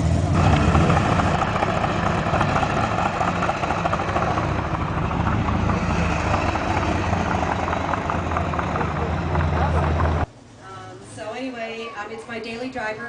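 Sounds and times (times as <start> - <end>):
car engine idling: 0.0 - 10.3.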